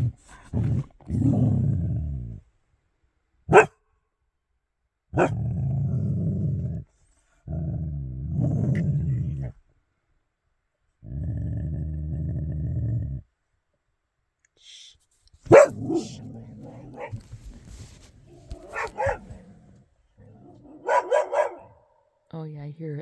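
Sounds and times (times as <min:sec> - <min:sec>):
dog growling low: 0:00.0 - 0:02.5, 0:05.2 - 0:09.6, 0:11.0 - 0:13.3, 0:15.5 - 0:20.9.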